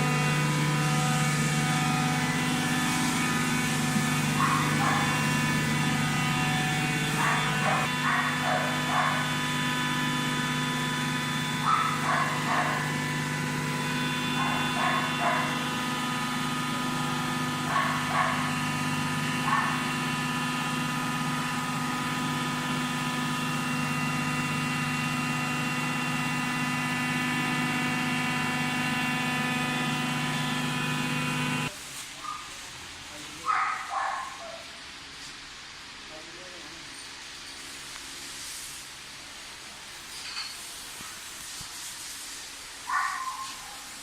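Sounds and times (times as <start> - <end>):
baler motor humming: 0.0 - 31.7
dog barking: 4.4 - 5.2, 7.2 - 9.3, 11.6 - 12.9, 14.4 - 15.6, 17.7 - 18.5, 19.4 - 19.8, 33.4 - 34.7, 42.9 - 43.9.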